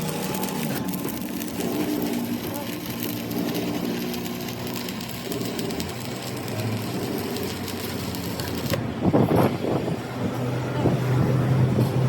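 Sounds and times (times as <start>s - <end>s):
machine humming: 0.0s - 8.8s.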